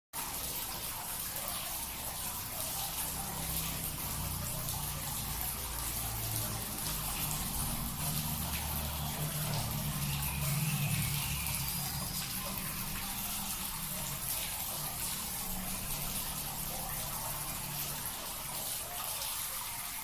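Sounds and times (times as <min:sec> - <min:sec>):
trickling water: 0:00.1 - 0:20.0.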